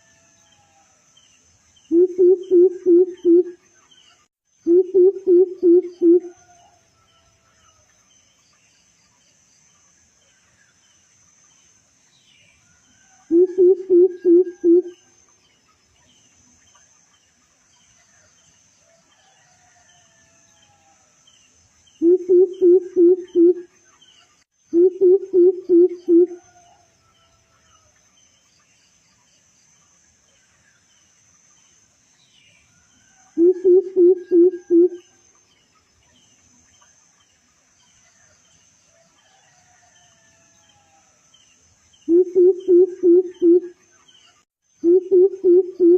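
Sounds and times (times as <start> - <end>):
crickets trilling: 0.0 - 3.6, 4.5 - 8.3, 9.6 - 17.3, 19.2 - 28.5, 29.6 - 38.0, 38.6 - 45.9
faint bird chirps: 1.8 - 6.8, 12.1 - 17.2, 21.9 - 26.8, 32.2 - 38.5, 42.0 - 45.9
bird deep hollow hooting: 1.9 - 3.6, 4.7 - 6.3, 13.3 - 15.0, 22.0 - 23.6, 24.8 - 26.4, 33.4 - 35.0, 42.1 - 43.7, 44.8 - 45.9.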